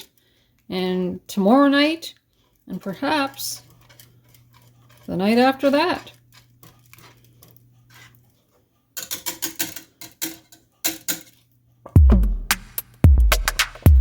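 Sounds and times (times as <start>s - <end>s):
electronic drum beats: 11.9s - 14.0s.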